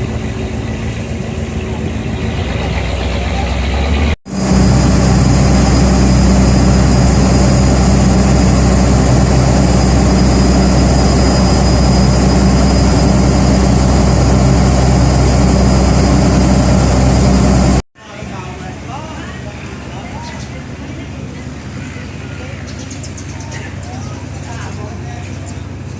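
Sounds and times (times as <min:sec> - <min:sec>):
boat engine droning: 0:00.0 - 0:17.8.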